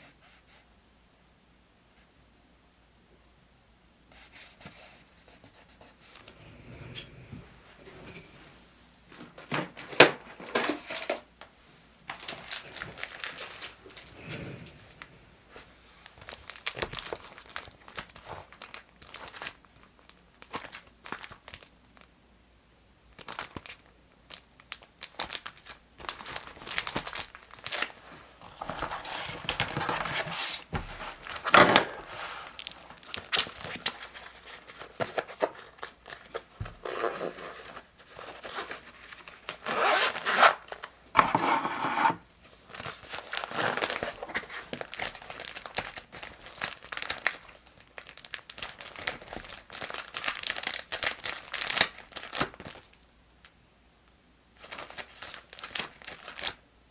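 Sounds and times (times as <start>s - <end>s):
paper crinkling and rustling: 12.1s - 14.4s, 15.0s - 22.1s, 23.2s - 41.6s, 42.4s - 53.0s, 54.6s - 56.6s.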